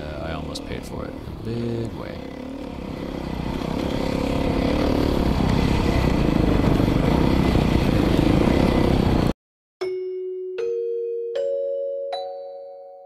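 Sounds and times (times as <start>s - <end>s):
dirt bike engine revving: 0.0s - 9.3s.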